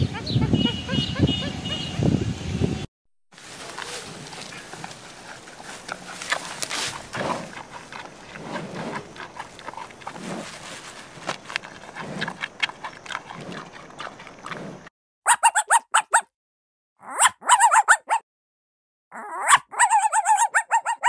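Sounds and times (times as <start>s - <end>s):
bamboo stalks crunching and snapping: 3.4s - 7.2s.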